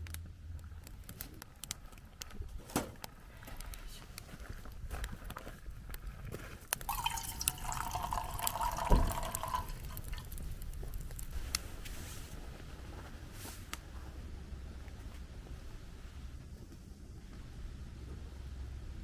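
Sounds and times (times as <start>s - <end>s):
campfire crackling: 0.0s - 17.4s
liquid being poured: 6.8s - 11.2s.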